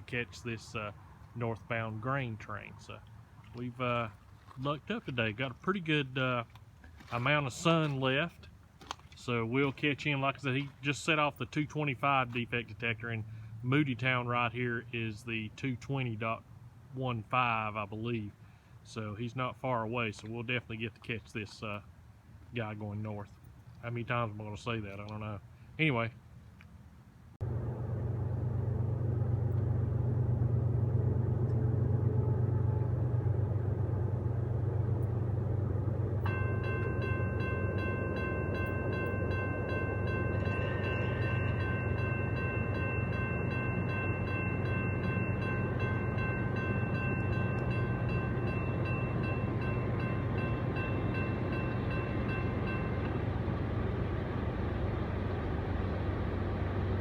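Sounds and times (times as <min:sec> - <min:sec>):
freight train rumbling past: 0:27.4 - 0:57.0
locomotive horn chord: 0:30.2 - 0:54.9.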